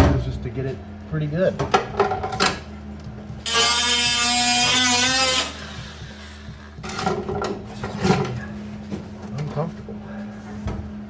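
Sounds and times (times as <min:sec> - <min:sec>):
welder arc buzzing and crackling: 0:03.4 - 0:06.8.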